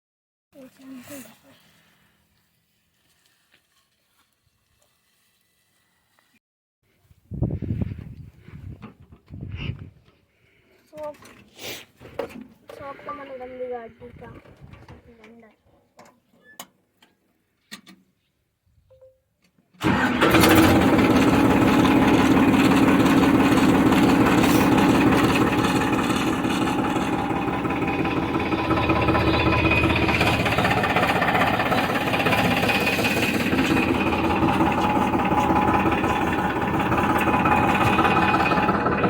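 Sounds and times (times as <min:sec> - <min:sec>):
tractor diesel engine knocking: 0:19.8 - 0:39.0.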